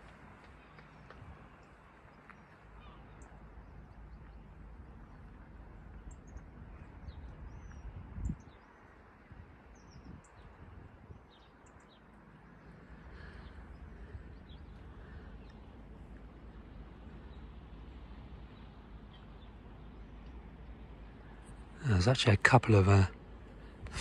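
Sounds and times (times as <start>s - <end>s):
low outdoor rumble: 0.0s - 24.0s
small birds chirping: 0.0s - 24.0s.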